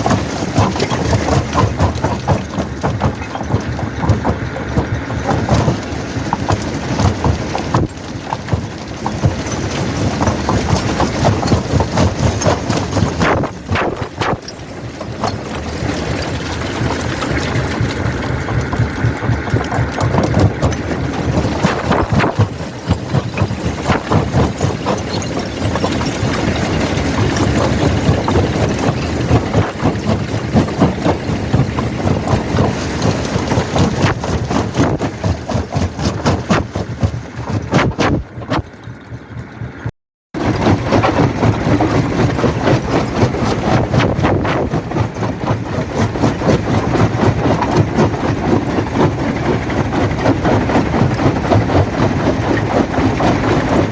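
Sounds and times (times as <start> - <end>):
heavy machine drone: 0.0 - 36.0
stone cracking in crusher: 0.0 - 38.6, 40.4 - 53.9.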